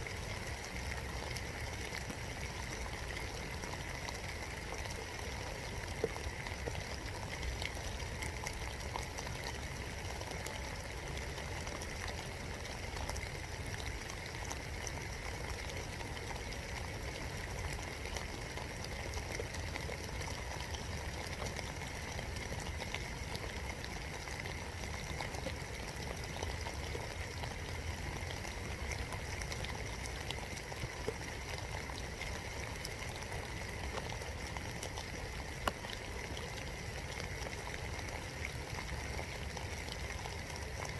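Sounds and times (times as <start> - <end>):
raindrops ticking on wood: 32.8 - 36.5.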